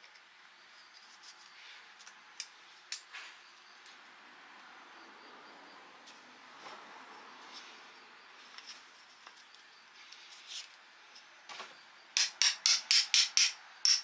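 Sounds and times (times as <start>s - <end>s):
hammer tapping: 12.2s - 14.0s.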